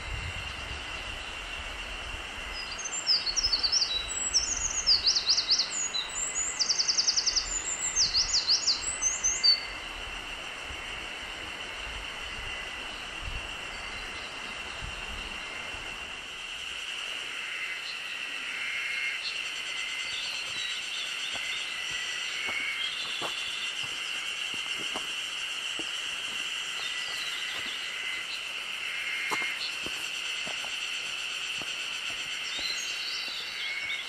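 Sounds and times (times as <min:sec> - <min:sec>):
high insect drone: 0:00.0 - 0:34.0
birds calling: 0:19.1 - 0:34.0.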